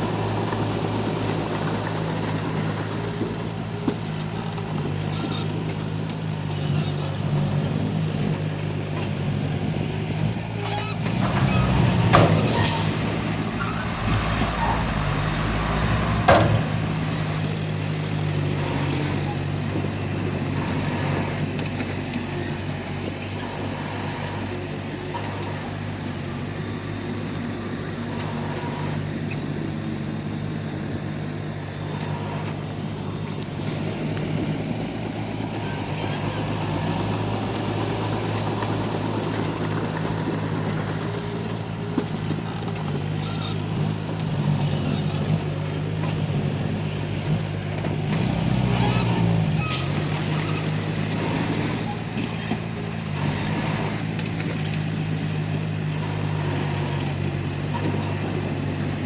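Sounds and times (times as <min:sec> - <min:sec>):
bulldozer diesel engine droning: 0:00.0 - 0:59.0
short knocks: 0:13.4 - 0:17.5.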